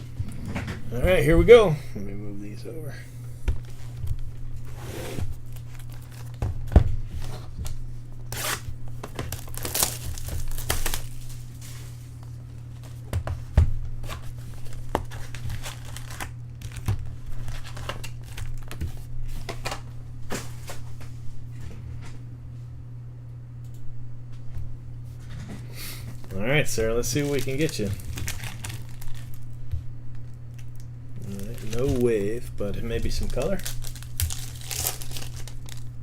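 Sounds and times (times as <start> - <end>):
steady low hum: 0.0 - 36.0
card wrappers tearing and crinkling: 4.6 - 13.0, 14.0 - 20.8, 26.1 - 29.6, 30.6 - 36.0.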